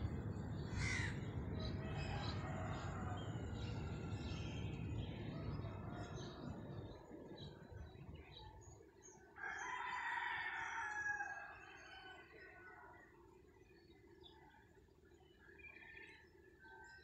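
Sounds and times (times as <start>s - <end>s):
bird long call: 0.7s - 4.5s.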